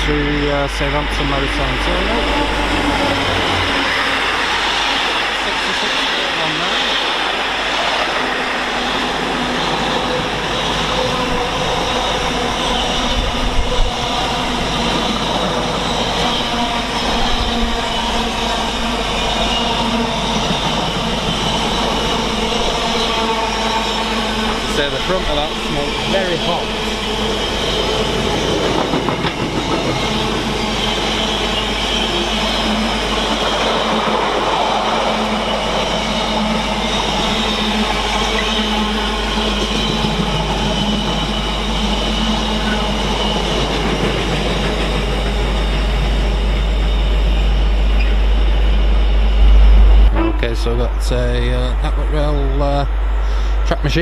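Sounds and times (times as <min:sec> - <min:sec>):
diesel locomotive passing: 0:00.0 - 0:54.0
wheels drumming on rails: 0:18.9 - 0:47.3
low bumps: 0:48.1 - 0:53.0.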